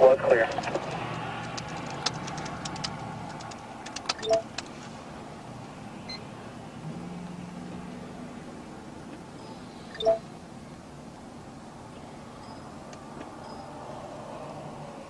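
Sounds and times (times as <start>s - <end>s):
two-note electronic beep: 10.0s - 10.3s.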